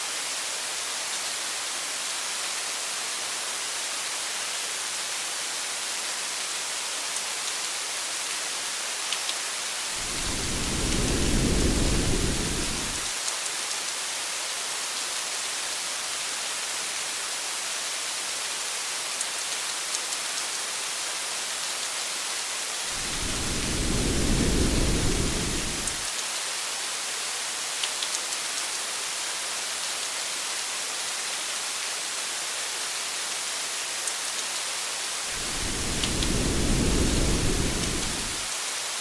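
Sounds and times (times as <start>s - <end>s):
low thunder rumble: 10.0s - 13.1s, 22.9s - 26.0s, 35.3s - 38.5s
sharp raindrop ticks: 35.4s - 38.5s.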